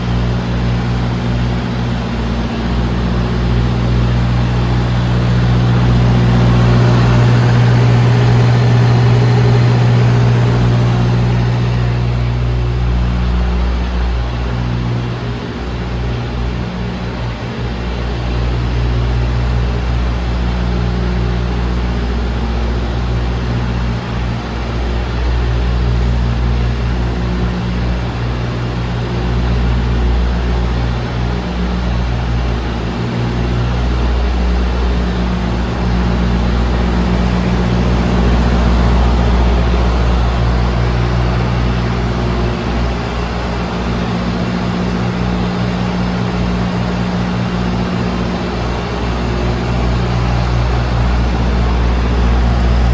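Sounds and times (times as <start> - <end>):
diesel engine idling: 0.0 - 13.6, 30.2 - 52.9.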